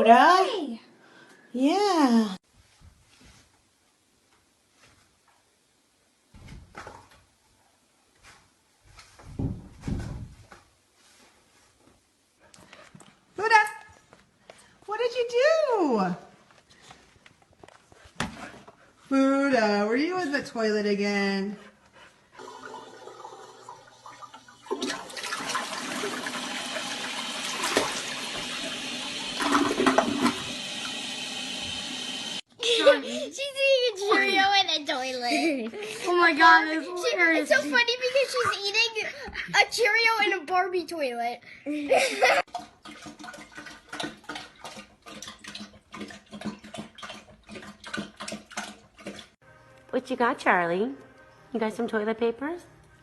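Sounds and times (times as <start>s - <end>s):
water splashing: 22.4s - 31.8s, 42.5s - 49.4s
toilet flushing: 22.4s - 32.5s, 42.3s - 49.4s.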